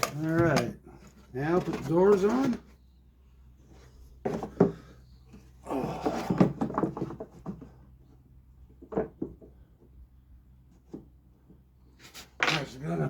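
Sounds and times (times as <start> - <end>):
wooden parts scraping and rubbing: 0.0 - 2.8, 11.9 - 13.0.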